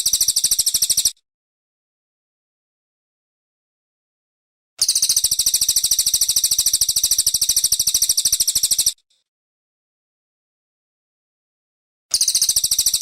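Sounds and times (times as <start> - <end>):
bird singing fast high trill: 12.1 - 13.0.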